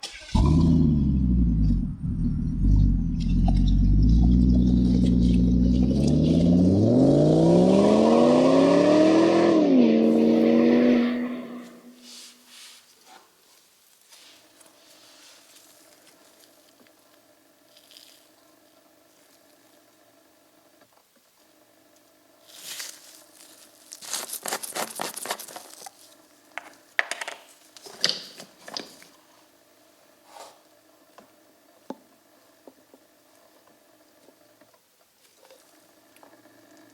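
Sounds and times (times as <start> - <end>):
rustling: 11.6 - 19.8, 22.4 - 26.2.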